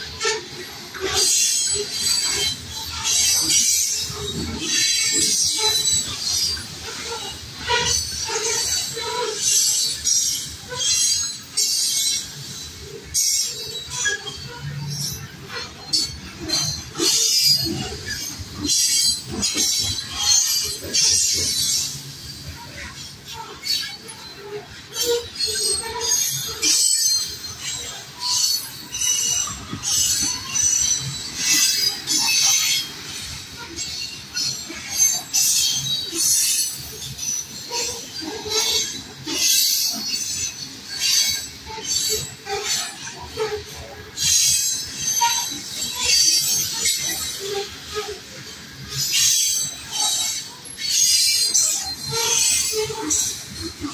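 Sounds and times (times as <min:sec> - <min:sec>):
train wheels rumbling and knocking: 0:00.0 - 0:53.9.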